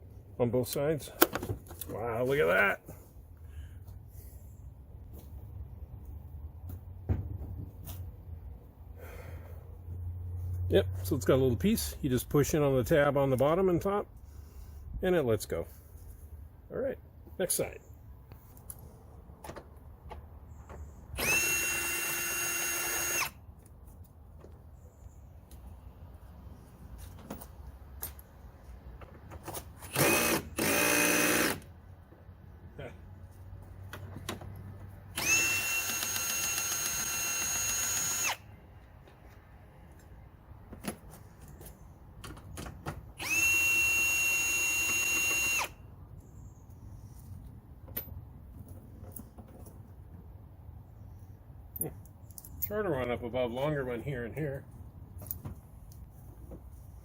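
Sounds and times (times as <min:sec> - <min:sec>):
power drill whine: 0:21.2 - 0:23.4, 0:29.9 - 0:31.6, 0:35.2 - 0:38.4, 0:43.2 - 0:45.8.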